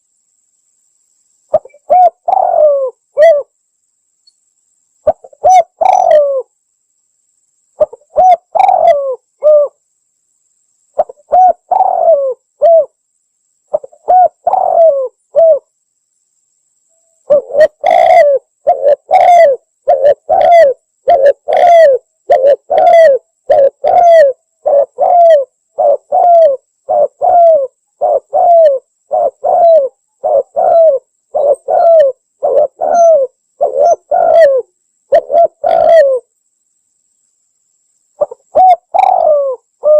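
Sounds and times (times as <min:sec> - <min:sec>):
dove cooing: 0:01.5 - 0:03.5, 0:05.0 - 0:06.5, 0:07.8 - 0:09.8, 0:11.0 - 0:13.0, 0:13.7 - 0:15.6, 0:17.3 - 0:36.3, 0:38.2 - 0:39.9.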